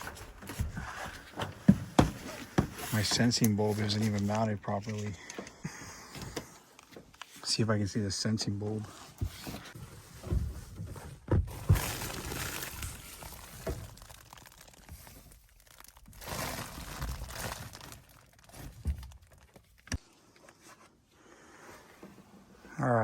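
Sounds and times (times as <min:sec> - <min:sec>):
crinkly rustling: 0:08.8 - 0:19.9.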